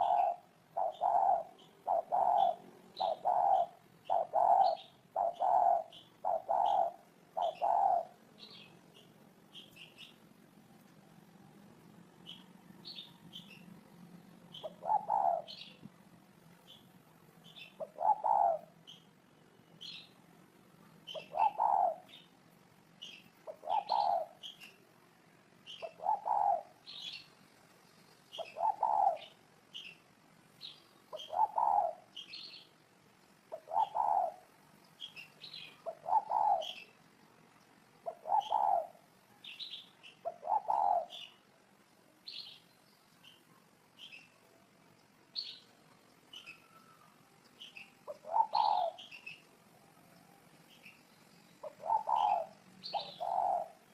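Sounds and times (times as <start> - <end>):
dove cooing: 0.0 - 8.7, 14.5 - 15.8, 17.5 - 18.8, 21.1 - 22.2, 23.0 - 24.6, 25.7 - 27.2, 28.3 - 29.4, 31.1 - 32.1, 33.5 - 34.5, 35.5 - 36.9, 38.0 - 39.1, 40.2 - 41.4, 48.0 - 49.4, 51.6 - 53.9
small birds chirping: 0.0 - 53.9.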